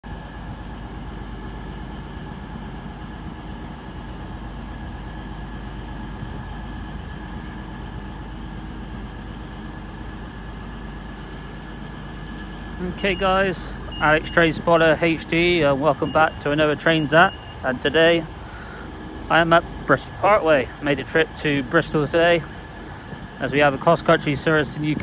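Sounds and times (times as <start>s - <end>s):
diesel train engine idling: 0.0s - 25.0s
thin high tone: 12.8s - 18.3s.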